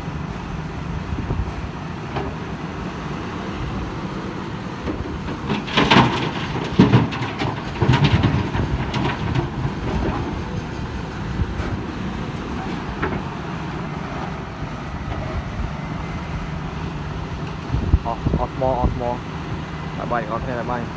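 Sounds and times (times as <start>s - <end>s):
excavator diesel engine running: 0.0s - 20.9s
loud metal clanks and clatters: 4.9s - 13.3s.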